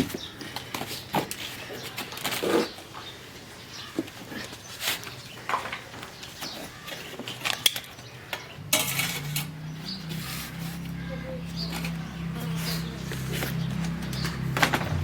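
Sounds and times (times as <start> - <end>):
metal utensils clinking on a pot: 8.7 - 9.6.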